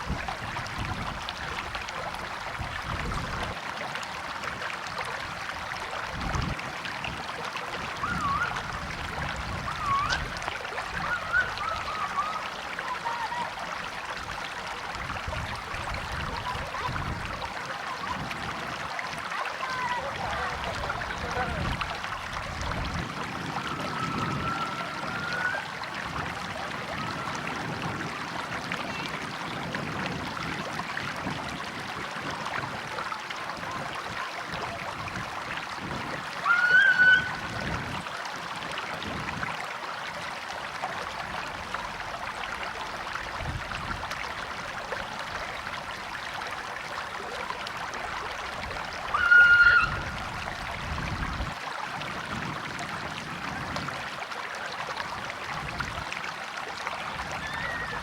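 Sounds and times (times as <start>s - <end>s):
stream water flowing: 0.0s - 58.0s.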